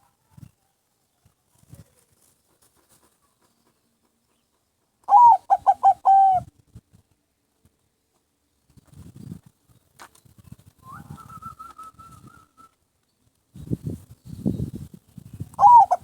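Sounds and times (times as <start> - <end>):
dove cooing: 5.1 - 6.5, 15.6 - 16.0.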